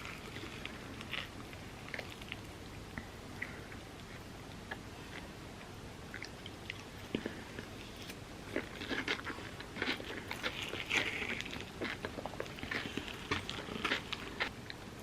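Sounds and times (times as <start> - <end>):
mouth chewing with crunches: 0.0 - 14.9.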